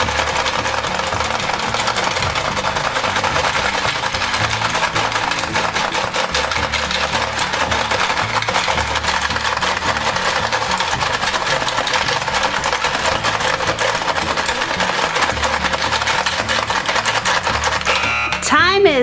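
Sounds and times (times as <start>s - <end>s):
gumballs and plastic parts clattering: 0.0s - 18.6s
background music: 0.0s - 19.0s.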